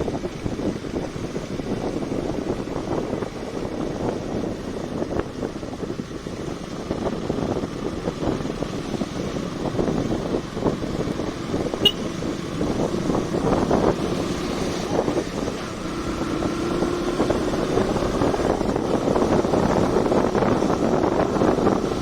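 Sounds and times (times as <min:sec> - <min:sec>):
motorcycle engine rumbling: 0:00.0 - 0:22.0
road and wind noise: 0:00.0 - 0:22.0.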